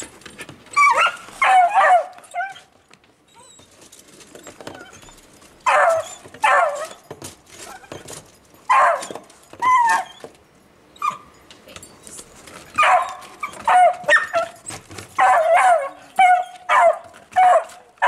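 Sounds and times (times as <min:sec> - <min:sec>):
dog barking and yipping: 0:00.7 - 0:02.7, 0:05.6 - 0:07.1, 0:07.7 - 0:10.3, 0:12.7 - 0:18.0.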